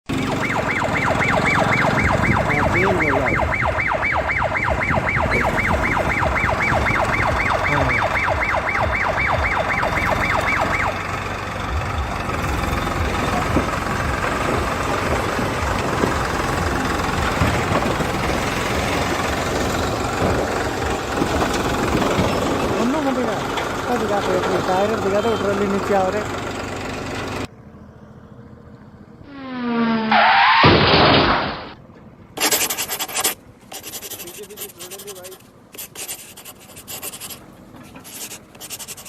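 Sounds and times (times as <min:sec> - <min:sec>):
vehicle engine running: 0:00.1 - 0:29.3
siren-like warbling tone: 0:00.2 - 0:11.1, 0:29.2 - 0:30.7.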